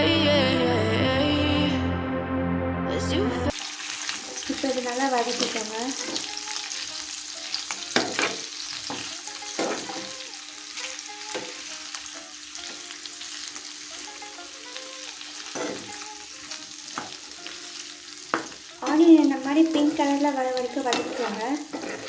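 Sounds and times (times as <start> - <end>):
onions sizzling in hot oil: 3.5 - 22.0
spatula scraping a pan: 5.4 - 6.8, 7.6 - 11.6, 15.5 - 16.0, 19.6 - 22.0.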